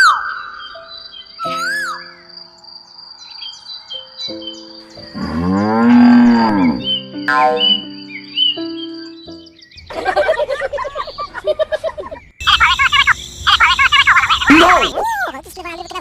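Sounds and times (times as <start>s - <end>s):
bird-like chirps: 0.0s - 5.6s, 6.6s - 10.0s, 12.1s - 15.8s
background music: 3.8s - 10.4s
cow mooing: 5.1s - 6.9s.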